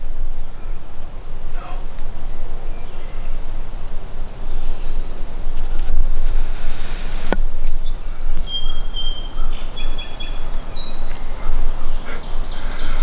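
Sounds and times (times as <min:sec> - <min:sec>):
songbird singing: 0:00.0 - 0:13.0
wind rumbling on microphone: 0:00.0 - 0:13.0.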